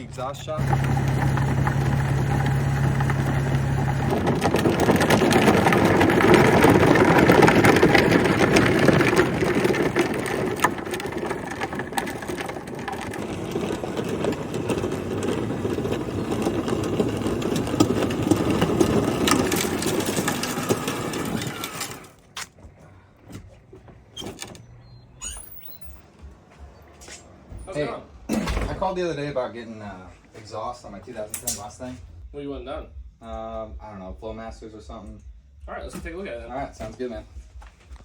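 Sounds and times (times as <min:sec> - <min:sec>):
plastic wheels crunching and rattling: 0:00.0 - 0:22.6
electric motor whirring: 0:00.5 - 0:05.1.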